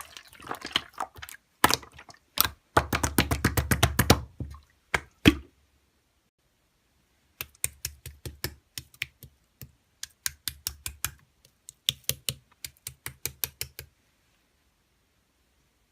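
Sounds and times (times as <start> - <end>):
uneven clicks and taps: 7.4 - 13.9.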